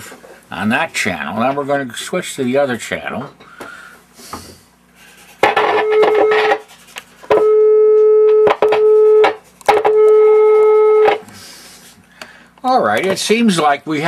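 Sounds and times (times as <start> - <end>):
sine-wave test tone: 5.6 - 6.6, 7.3 - 11.2.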